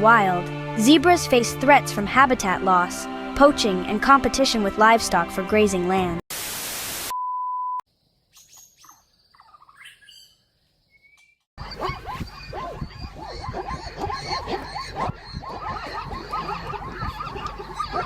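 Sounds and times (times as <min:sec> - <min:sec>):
short beep tone: 0:07.1 - 0:07.8
chorus of yipping animal calls: 0:11.6 - 0:18.0.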